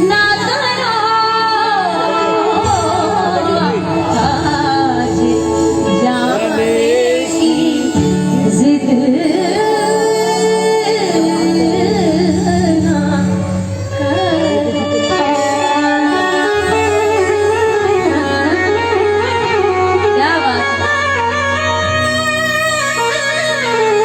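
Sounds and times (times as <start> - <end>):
ornamented devotional melody: 0.0 - 24.0.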